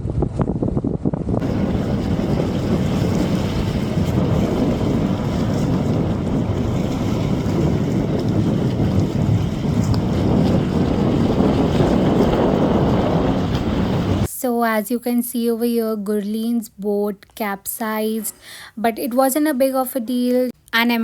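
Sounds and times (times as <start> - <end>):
wind buffeting microphone: 0.0 - 14.3
water and waves rushing: 1.4 - 14.3.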